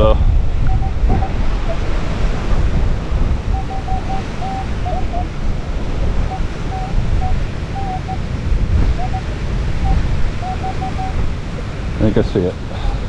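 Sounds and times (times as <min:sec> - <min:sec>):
wind buffeting microphone: 0:00.0 - 0:13.0
metal detector beeping: 0:03.5 - 0:05.3, 0:06.2 - 0:08.2, 0:09.8 - 0:11.2.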